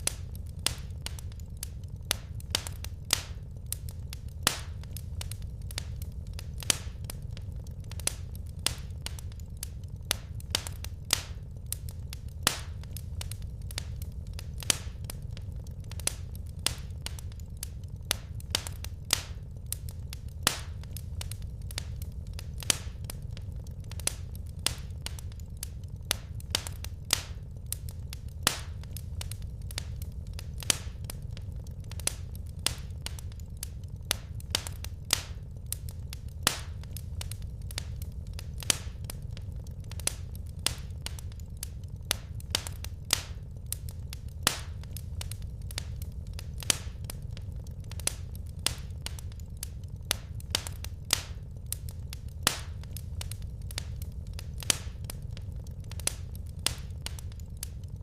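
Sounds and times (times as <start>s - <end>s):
low rumble of flames: 0.0s - 58.0s
wood fire crackling: 0.0s - 58.0s.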